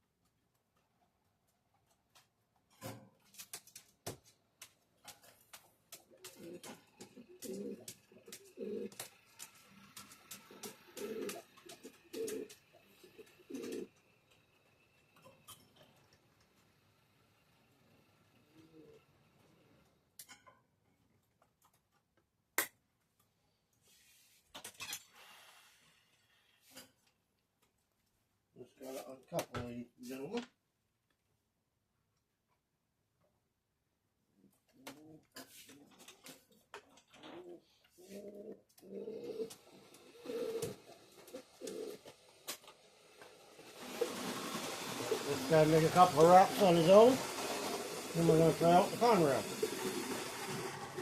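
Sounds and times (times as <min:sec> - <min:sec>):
model train wheels clicking: 0:06.4 - 0:19.8, 0:39.5 - 0:51.0
faint rushing clatter: 0:42.1 - 0:51.0.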